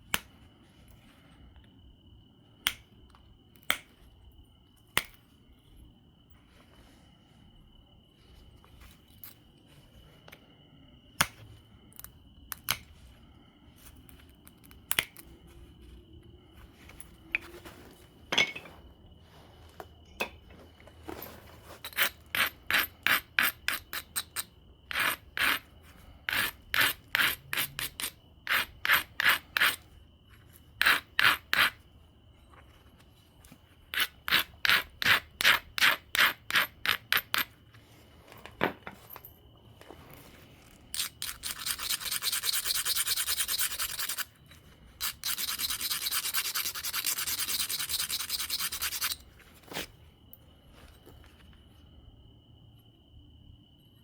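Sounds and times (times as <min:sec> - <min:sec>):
stone rasping on stone edge: 0:21.8 - 0:25.6, 0:26.3 - 0:29.8, 0:30.8 - 0:31.8, 0:33.9 - 0:37.5, 0:40.9 - 0:44.4, 0:45.0 - 0:49.2.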